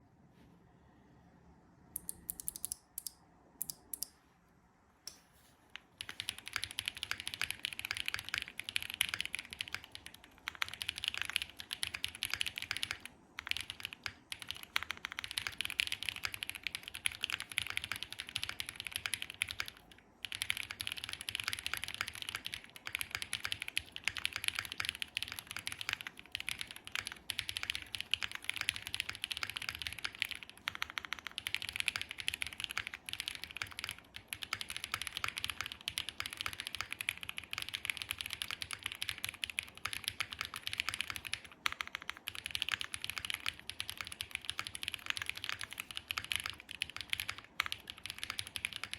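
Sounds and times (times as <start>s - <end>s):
typing on mechanical keyboard: 2.0s - 4.1s, 5.8s - 48.9s.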